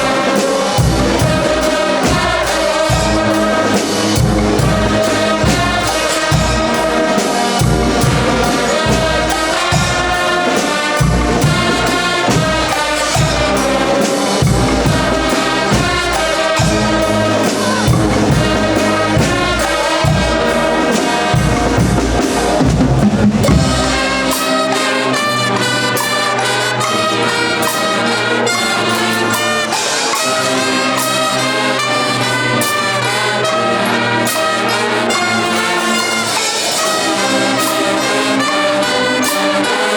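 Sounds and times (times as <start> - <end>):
drum beat: 0.0 - 25.8
brass band playing loudly: 0.0 - 39.9
trumpets and trombones: 0.0 - 39.9.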